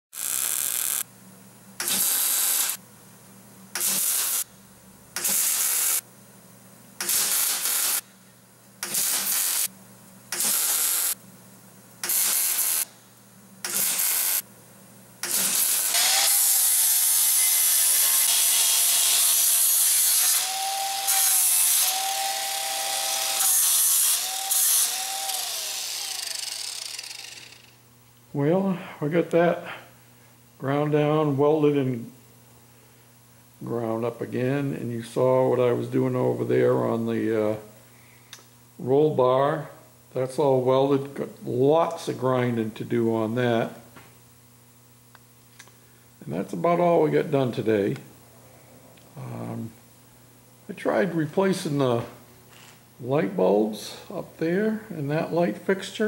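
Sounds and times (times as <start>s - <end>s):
short welding bursts: 0.2s - 1.1s, 1.8s - 2.8s, 3.8s - 4.5s, 5.2s - 6.0s, 7.0s - 8.1s, 8.8s - 9.7s, 10.3s - 11.2s, 12.0s - 13.0s, 13.6s - 14.4s, 15.2s - 27.8s
electrical hum: 0.2s - 56.0s
angle grinder whining: 15.2s - 27.8s.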